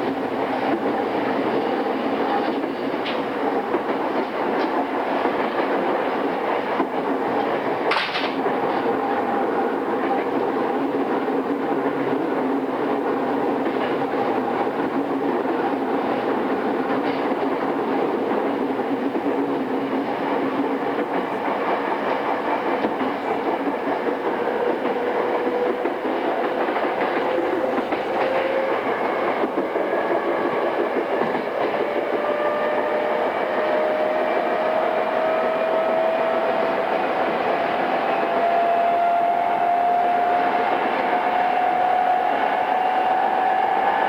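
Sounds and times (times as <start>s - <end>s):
clacking over rail joints: 0.0s - 9.3s, 9.9s - 32.8s
train wheels rumbling on rail: 0.0s - 44.0s.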